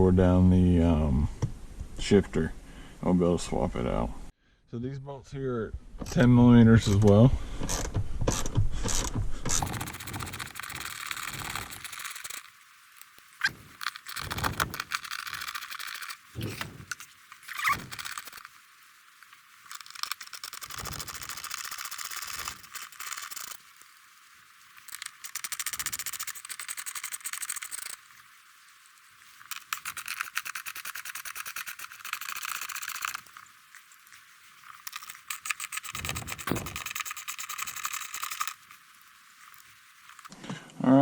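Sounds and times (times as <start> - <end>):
ratchet wrench clicking: 7.7 - 12.5, 13.5 - 18.5, 19.7 - 23.6, 24.8 - 28.0, 29.5 - 33.3, 34.8 - 38.6.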